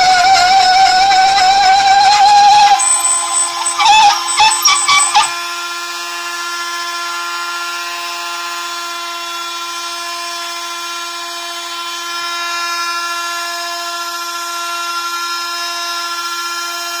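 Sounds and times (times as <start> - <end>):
loud uneven machine sounds: 0.0 - 5.4
spindle motor whining: 0.0 - 5.4.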